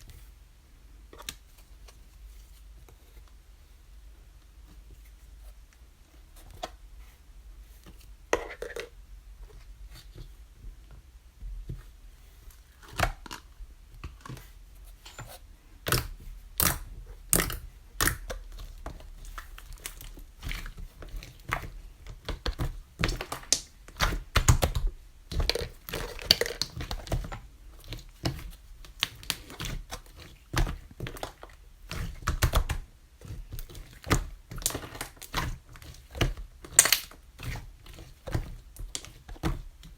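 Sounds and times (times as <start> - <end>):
slime clicking and popping: 15.9 - 18.4, 36.6 - 37.2.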